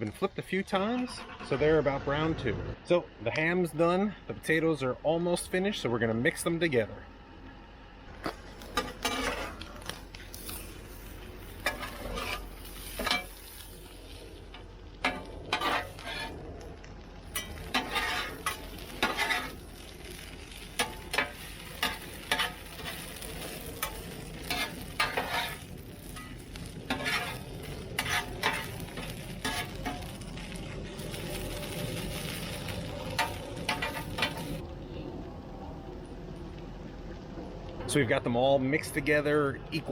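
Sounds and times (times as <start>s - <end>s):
food sizzling: 8.2s - 34.7s
spatula scraping a griddle: 8.6s - 16.4s, 17.3s - 34.6s.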